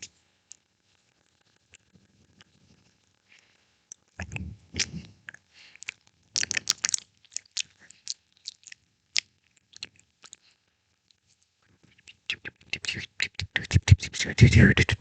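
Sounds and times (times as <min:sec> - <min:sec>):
wet mouth clicks and pops: 0:05.8 - 0:10.4.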